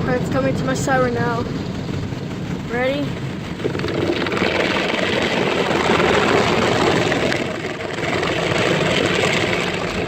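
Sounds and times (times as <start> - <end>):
car wash brush running: 2.7 - 10.0.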